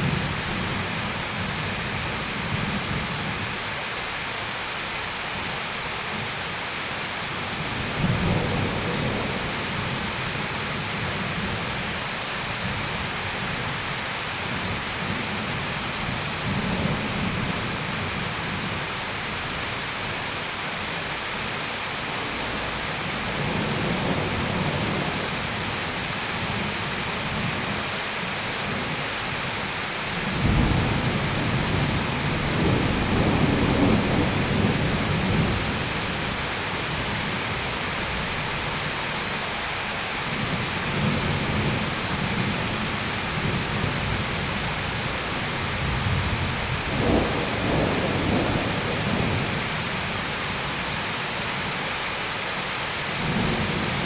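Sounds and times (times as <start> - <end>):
heavy rain: 0.0 - 54.0
thunder: 30.3 - 35.8, 45.8 - 49.6.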